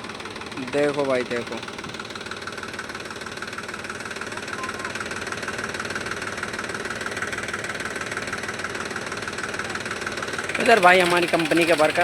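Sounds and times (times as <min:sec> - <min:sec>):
heavy diesel engine knocking: 0:00.0 - 0:12.0.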